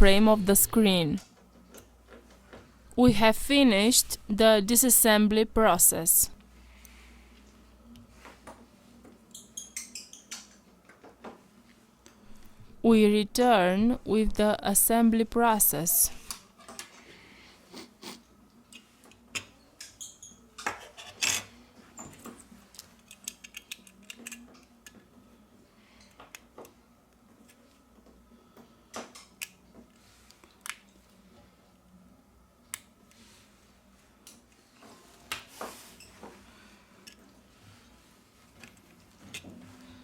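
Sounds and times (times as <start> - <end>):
faint steady hum: 0.0 - 9.4, 10.6 - 20.6.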